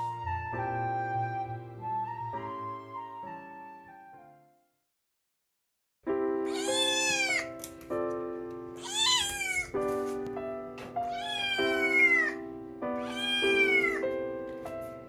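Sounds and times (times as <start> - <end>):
background music: 0.0 - 4.4
cat meowing: 6.5 - 7.6, 8.8 - 9.8, 11.0 - 12.4, 13.0 - 14.1.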